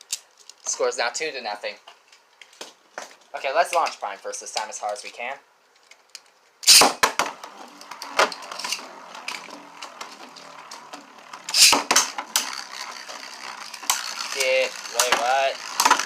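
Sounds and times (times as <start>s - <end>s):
spinning tops clattering: 7.5s - 16.0s
spinning top launch burst: 11.3s - 16.0s.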